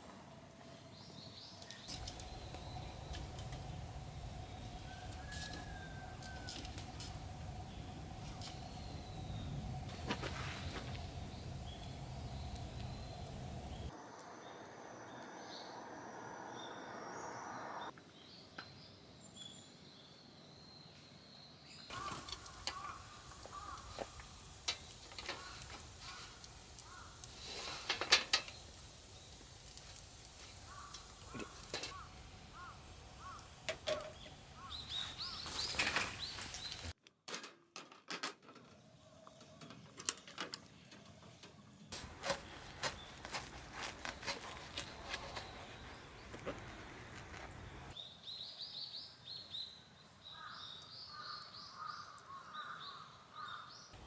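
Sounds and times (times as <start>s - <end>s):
outdoor background noise: 0.0s - 54.0s
birds chirping: 1.0s - 18.4s, 21.8s - 37.0s, 42.0s - 48.6s.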